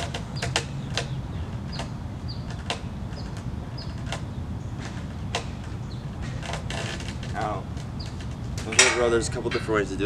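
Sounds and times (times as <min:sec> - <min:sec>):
low outdoor rumble: 0:00.0 - 0:10.0
small bird clicks and chirps: 0:00.4 - 0:06.0.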